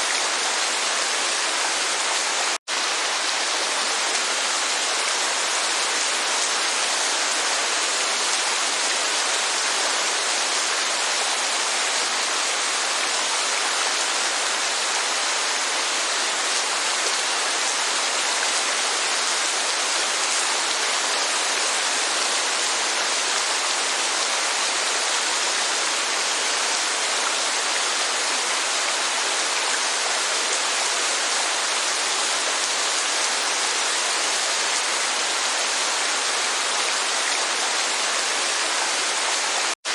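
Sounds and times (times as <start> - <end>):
rushing water: 0.0 - 39.9
steady rainfall: 0.0 - 39.9.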